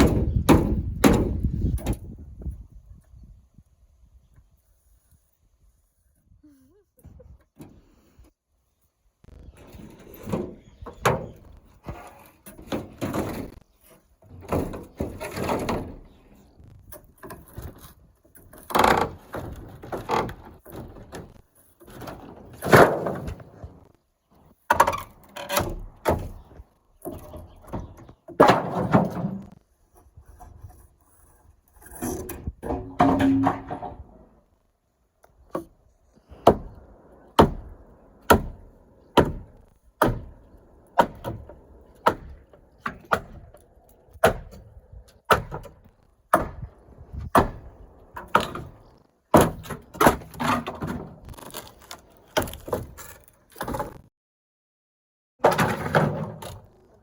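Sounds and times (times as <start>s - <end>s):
wooden knocks and thuds: 0.0s - 2.2s, 32.2s - 34.2s, 37.4s - 43.6s, 45.3s - 51.6s
wood creaking: 9.4s - 34.5s, 35.2s - 54.1s.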